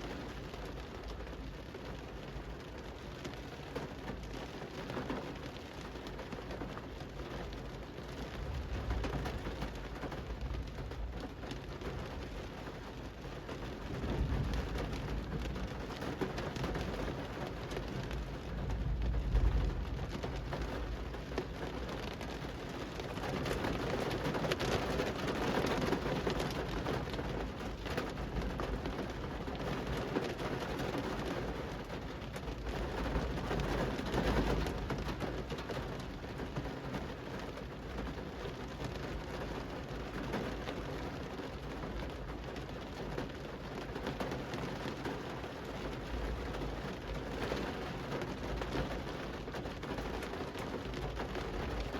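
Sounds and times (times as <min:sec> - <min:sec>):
steady rain on a street: 0:00.0 - 0:51.9
low rumbles: 0:18.6 - 0:21.4.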